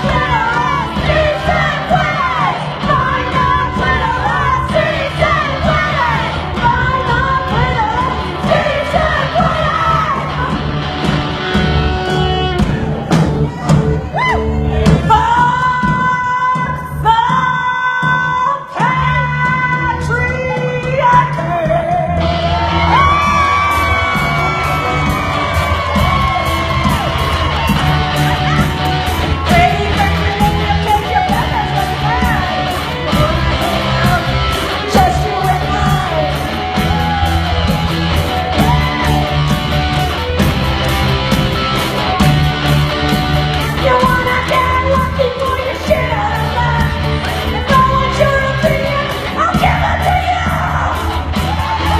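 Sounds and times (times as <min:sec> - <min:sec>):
woman singing: 0:00.0 - 0:10.6, 0:14.9 - 0:22.3, 0:29.4 - 0:36.6, 0:43.6 - 0:51.0
electric guitar: 0:00.0 - 0:16.1, 0:18.8 - 0:51.9
bass guitar: 0:00.0 - 0:51.9
drums: 0:00.0 - 0:51.9
live rock band: 0:00.0 - 0:51.9.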